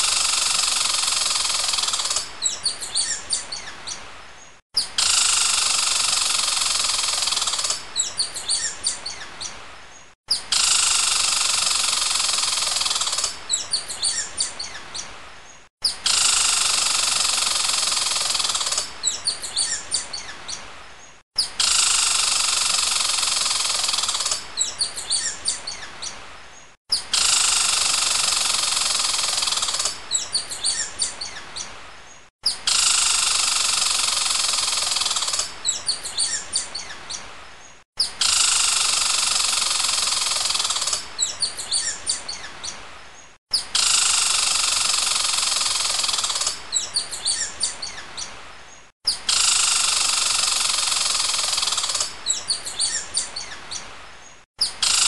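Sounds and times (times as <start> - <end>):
high bird chirps: 21.4 - 26.2, 34.5 - 37.2, 40.1 - 42.8, 46.1 - 48.3, 49.1 - 53.8.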